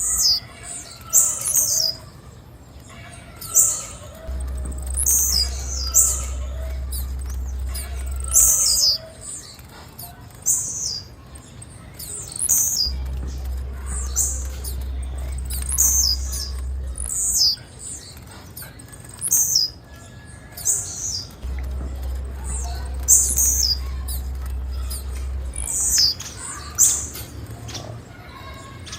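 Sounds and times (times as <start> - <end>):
bird chip notes: 0.0 - 28.9
low hum: 4.0 - 9.7, 11.8 - 18.2, 21.3 - 27.6.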